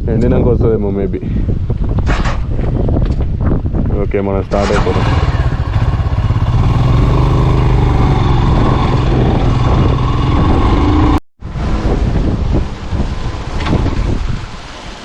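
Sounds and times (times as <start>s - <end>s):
motorcycle engine riding off: 4.5s - 11.8s.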